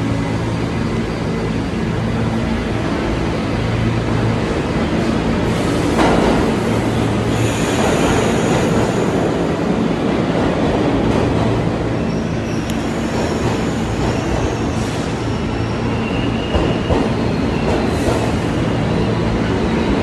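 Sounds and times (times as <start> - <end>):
train rumbling on rails: 0.0 - 20.0
train clanks: 4.1 - 20.0.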